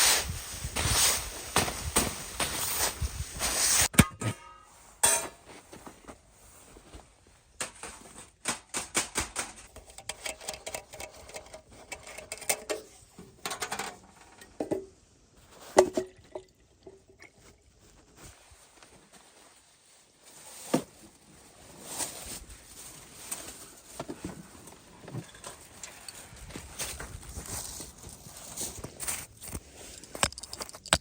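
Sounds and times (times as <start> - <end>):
hard objects knocking and clinking: 30.0 - 31.0.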